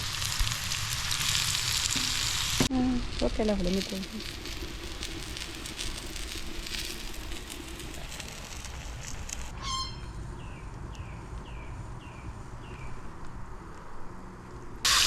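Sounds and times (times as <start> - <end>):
food sizzling in a frying pan: 0.0 - 9.5.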